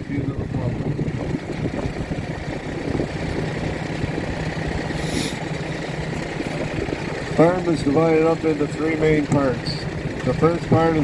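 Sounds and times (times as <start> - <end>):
vehicle engine humming: 0.0 - 11.0
brief high hiss: 5.0 - 5.4.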